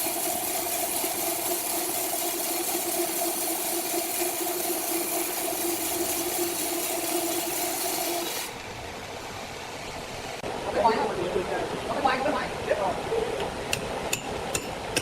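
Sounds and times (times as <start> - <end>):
sawmill machinery humming: 0.0 - 9.0.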